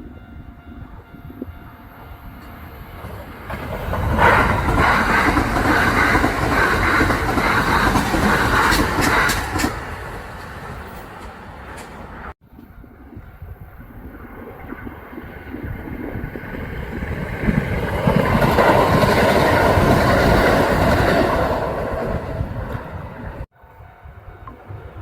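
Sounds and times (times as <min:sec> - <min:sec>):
electric train passing: 0:00.0 - 0:25.0
train wheels clattering: 0:03.0 - 0:12.2.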